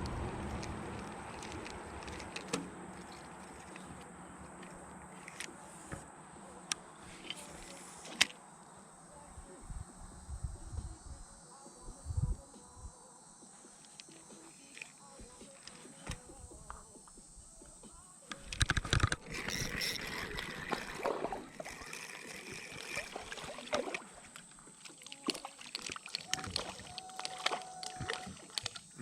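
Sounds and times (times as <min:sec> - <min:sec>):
fishing gear clattering in boat: 0:00.0 - 0:06.1, 0:18.2 - 0:29.0
water splashing against boat: 0:00.0 - 0:08.8, 0:14.0 - 0:29.0.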